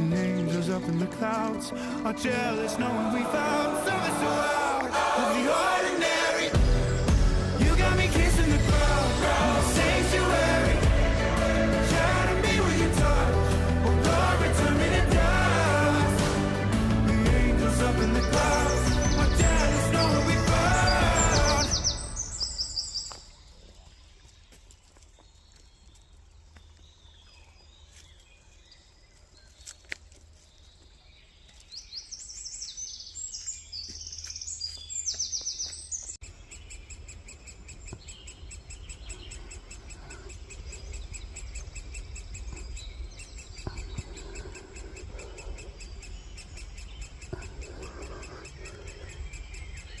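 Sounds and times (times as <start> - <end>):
songbirds singing: 0.0 - 50.0
low rumble: 6.6 - 22.3.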